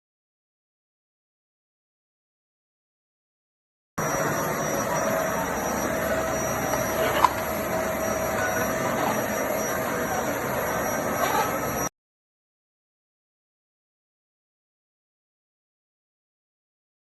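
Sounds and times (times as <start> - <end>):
vacuum cleaner whining: 4.0 - 11.9.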